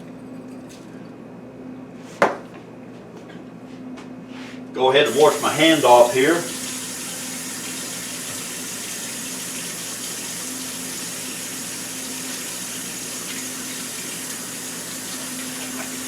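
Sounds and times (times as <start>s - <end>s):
hand rinsed under water: 5.1s - 16.0s
tap running into sink: 7.6s - 8.6s, 15.0s - 16.0s.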